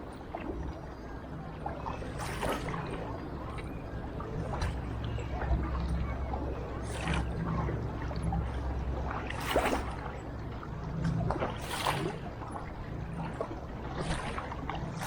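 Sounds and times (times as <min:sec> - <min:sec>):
steady low rumble: 0:00.0 - 0:15.0
paddle splashing in water: 0:02.1 - 0:03.0, 0:09.1 - 0:10.2, 0:11.1 - 0:12.7, 0:13.3 - 0:15.0.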